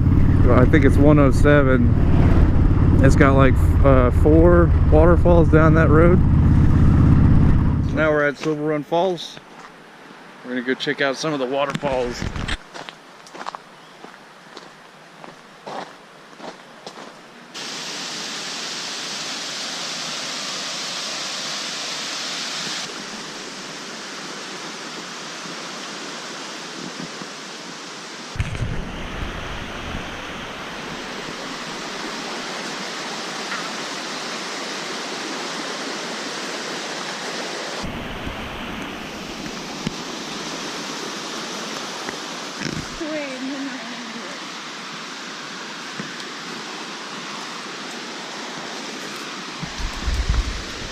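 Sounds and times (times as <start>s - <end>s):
deep rumble: 0.0s - 8.2s, 49.6s - 50.9s
waterfall rushing: 17.6s - 50.9s.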